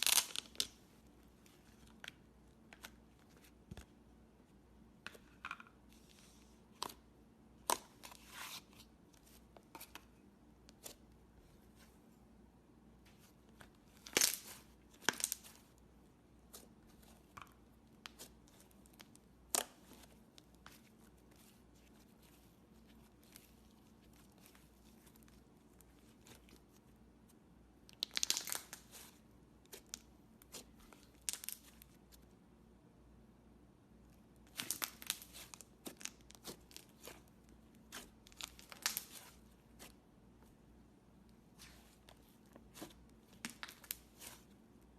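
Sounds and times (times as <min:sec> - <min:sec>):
slime clicking and crackling: 0:34.5 - 0:39.9.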